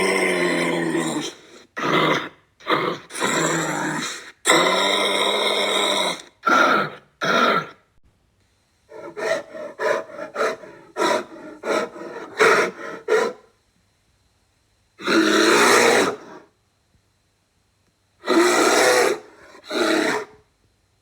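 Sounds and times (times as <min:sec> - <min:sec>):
large wild animal calling: 0:18.2 - 0:20.4.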